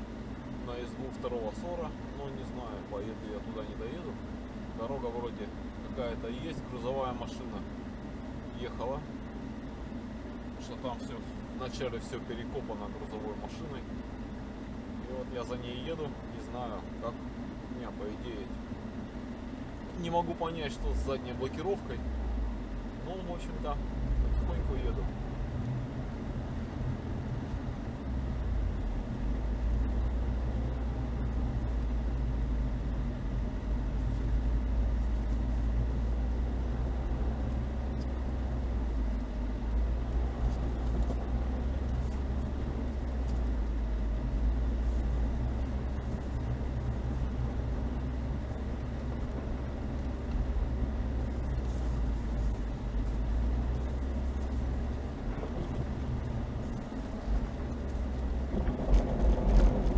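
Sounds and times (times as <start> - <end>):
car engine droning: 0.0 - 59.9.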